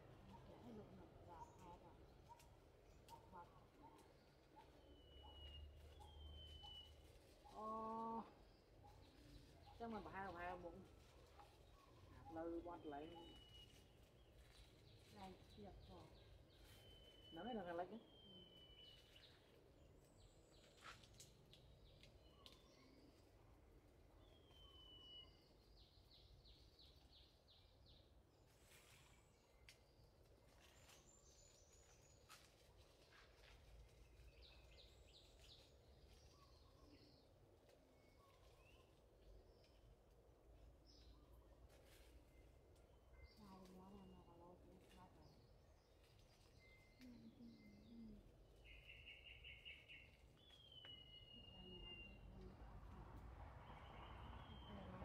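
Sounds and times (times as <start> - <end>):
bird chirps: 3.1 - 7.4, 11.4 - 19.6, 24.2 - 27.7, 45.2 - 52.5, 53.6 - 55.0.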